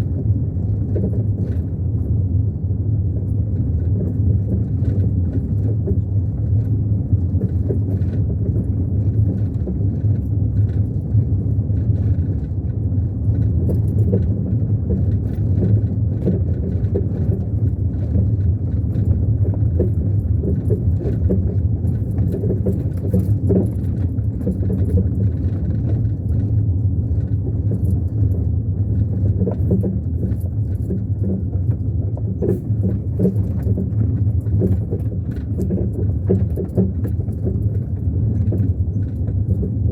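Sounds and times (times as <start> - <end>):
car engine and road rumble: 0.0 - 39.9
light rattles and clicks: 0.0 - 39.9.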